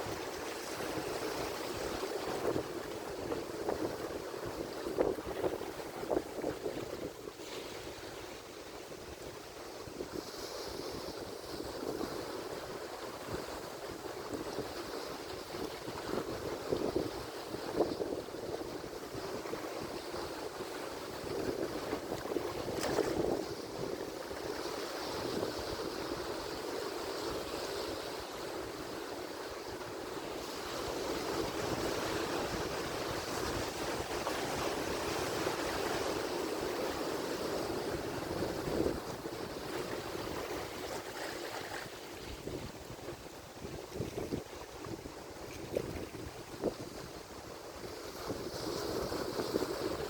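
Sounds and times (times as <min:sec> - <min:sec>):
ocean waves breaking: 0:18.8 - 0:50.0.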